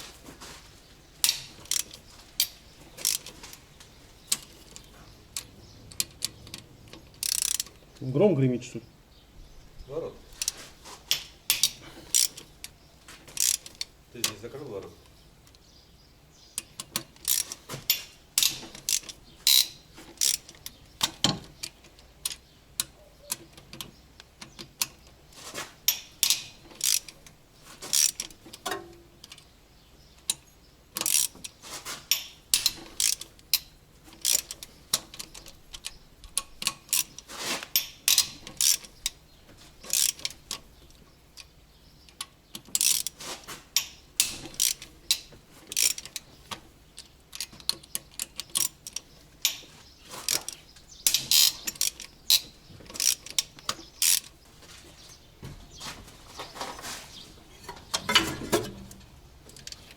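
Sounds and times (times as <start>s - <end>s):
ratchet wrench clicking: 1.2s - 3.3s, 7.1s - 7.7s, 10.4s - 12.4s, 13.4s - 13.9s, 16.6s - 17.5s, 18.4s - 20.6s, 25.9s - 27.2s, 27.9s - 28.3s, 31.0s - 31.3s, 32.1s - 37.2s, 37.8s - 39.2s, 39.9s - 40.6s, 42.2s - 43.2s, 43.8s - 46.2s, 51.1s - 54.3s.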